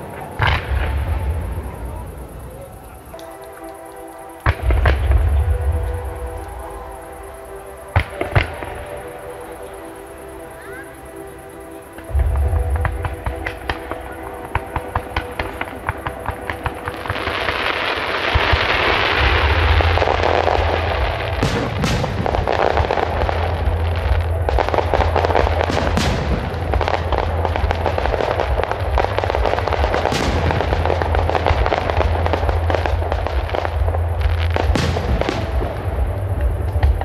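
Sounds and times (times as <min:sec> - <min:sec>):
fireworks crackle and hiss: 0:00.0 - 0:37.0
low rumble: 0:04.6 - 0:07.9, 0:12.1 - 0:16.6, 0:18.9 - 0:37.0.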